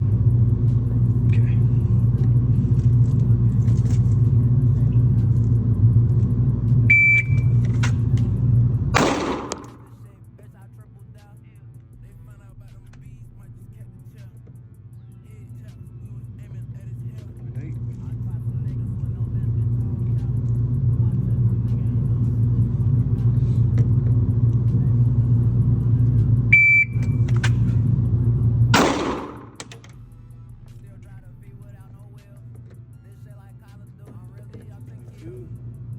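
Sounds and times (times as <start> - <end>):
car engine rumble: 0.0 - 35.9
high electronic beep: 6.9 - 7.6, 26.6 - 27.2
clicks: 28.8 - 30.0.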